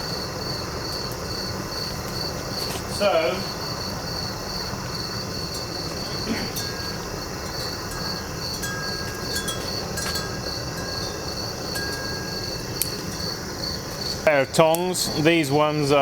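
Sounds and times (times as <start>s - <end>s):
crickets chirping: 0.0s - 16.0s
weed-burner torch rushing: 0.0s - 16.0s
light metallic clinks: 5.4s - 15.6s.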